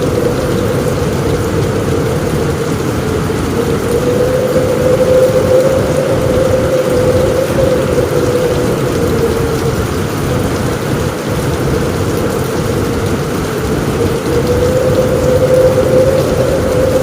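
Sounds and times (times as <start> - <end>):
mid-pitched drone: 0.0 - 10.4, 14.0 - 17.0
deep rumble: 0.0 - 17.0
heavy rain on a roof: 0.0 - 17.0.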